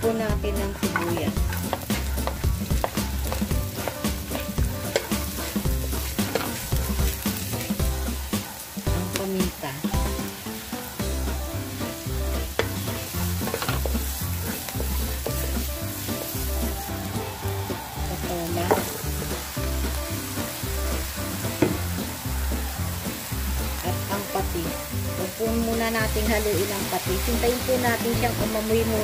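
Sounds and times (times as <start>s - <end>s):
background music: 0.0s - 29.0s
vegetables sizzling in hot oil: 0.0s - 29.0s
spatula scraping: 0.5s - 8.6s, 11.0s - 16.8s.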